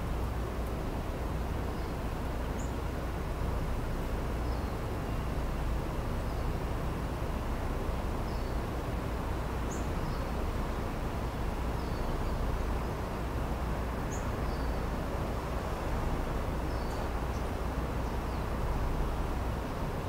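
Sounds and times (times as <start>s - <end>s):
distant city rumble: 0.0s - 20.0s
bird chirping: 8.2s - 8.6s, 9.7s - 10.4s, 11.8s - 13.0s, 14.1s - 14.8s, 16.7s - 18.5s.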